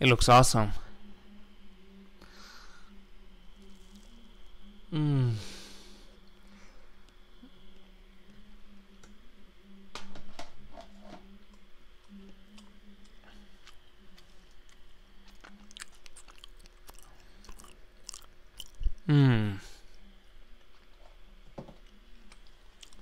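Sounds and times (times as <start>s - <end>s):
person chewing: 3.6s - 4.2s, 13.3s - 19.2s, 22.3s - 23.0s.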